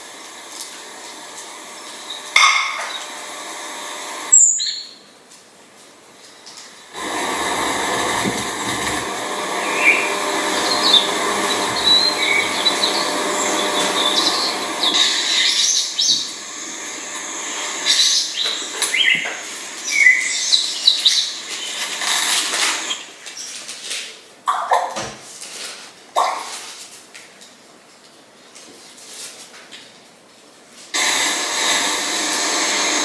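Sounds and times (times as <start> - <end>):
birds chirping: 6.8 - 23.2.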